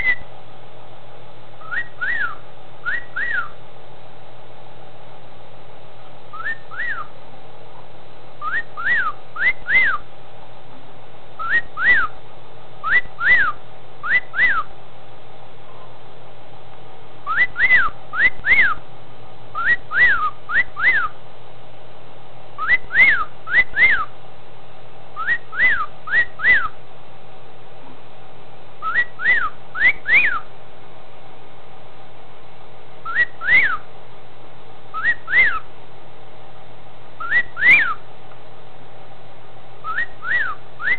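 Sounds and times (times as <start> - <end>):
cockatiel wolf whistle: 0.0 - 0.2, 1.6 - 3.6, 6.3 - 7.1, 8.4 - 10.0, 11.4 - 12.1, 12.8 - 14.7, 17.2 - 18.8, 19.6 - 21.1, 22.6 - 24.1, 25.2 - 26.8, 28.8 - 30.5, 33.0 - 33.8, 34.9 - 35.6, 37.2 - 38.0, 39.8 - 40.9
faint steady hum: 0.0 - 40.9.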